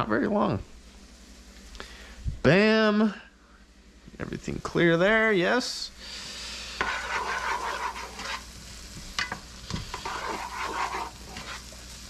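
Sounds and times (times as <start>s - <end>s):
onions sizzling: 0.0s - 12.0s
utensil scraping pot: 6.8s - 8.5s, 9.2s - 11.8s.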